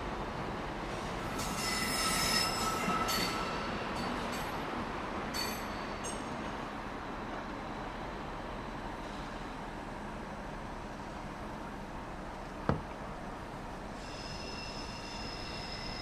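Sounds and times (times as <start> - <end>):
train rumbling on tracks: 0.0 - 16.0
high wheel squeal: 1.4 - 3.8, 13.9 - 16.0.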